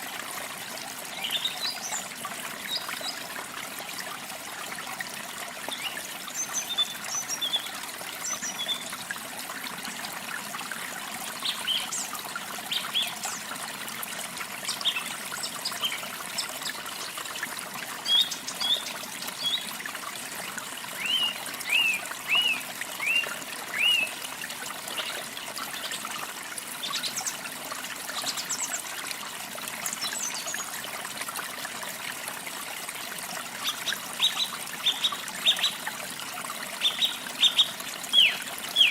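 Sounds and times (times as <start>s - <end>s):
trickle of running water: 0.0s - 38.9s.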